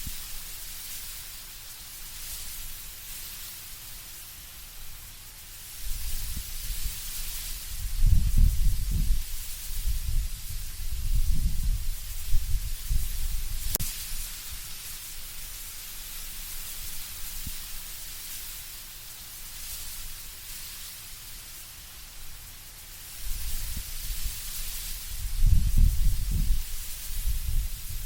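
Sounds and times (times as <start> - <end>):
wind rustling leaves in trees: 0.0 - 28.0
low wind gusts rumbling: 7.6 - 13.8, 25.0 - 28.0.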